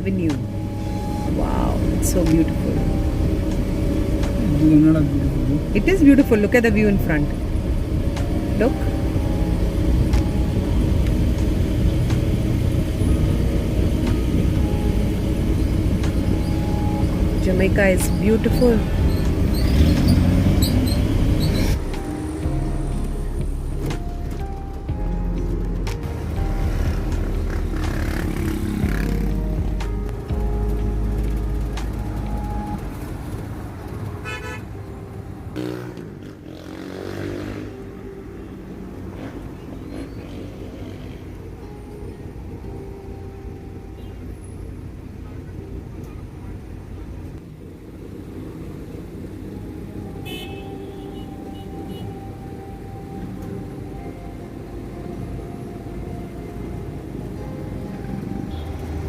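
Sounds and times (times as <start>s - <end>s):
car driving on road: 0.0s - 59.0s
car horn toot: 34.2s - 34.8s, 50.2s - 52.2s.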